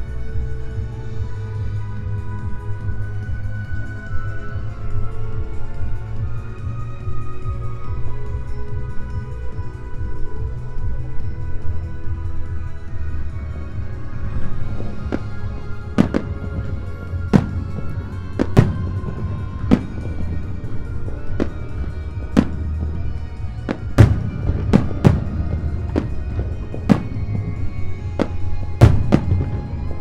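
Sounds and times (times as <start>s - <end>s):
music playing: 0.0s - 30.0s
fireworks bursting: 13.2s - 30.0s.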